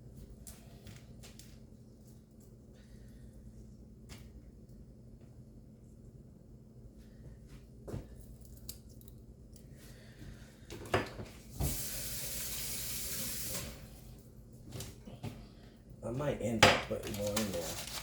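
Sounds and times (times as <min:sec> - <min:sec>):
kitchen tap running: 0:11.5 - 0:14.1.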